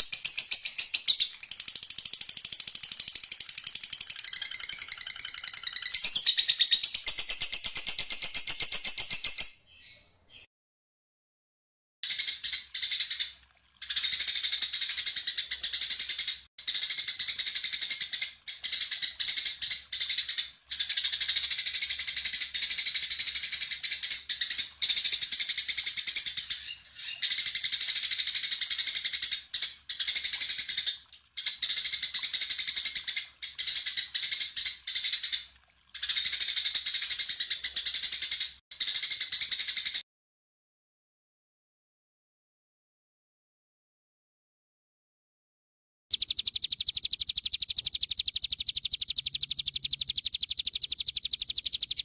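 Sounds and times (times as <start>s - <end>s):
songbird singing chattering song: 0.0s - 10.5s, 46.1s - 52.0s.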